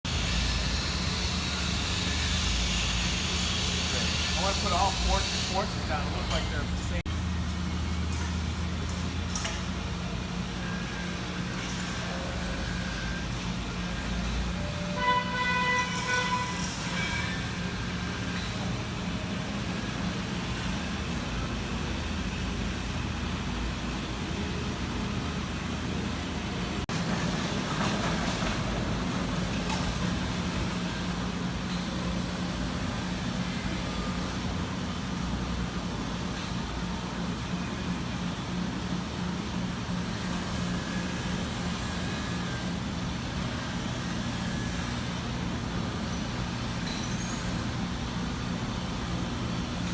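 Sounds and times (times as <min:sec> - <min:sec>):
industrial machinery hiss: 0:00.1 - 0:07.0
horn-like tone: 0:14.6 - 0:17.4.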